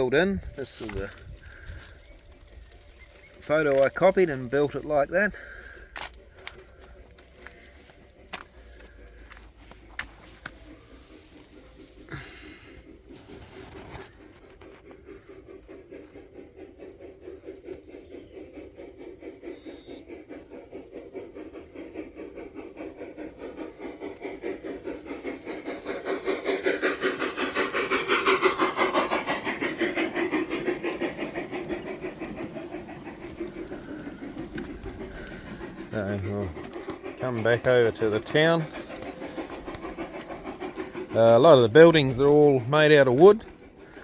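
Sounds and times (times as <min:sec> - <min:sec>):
model train wheels ticking on rails: 0:00.0 - 0:44.0.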